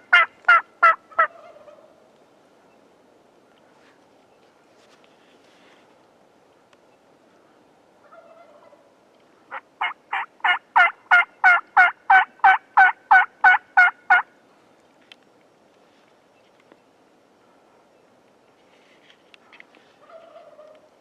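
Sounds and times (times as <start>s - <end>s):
turkey yelps: 0.1s - 1.9s, 8.0s - 8.8s, 9.5s - 14.3s, 20.0s - 20.9s.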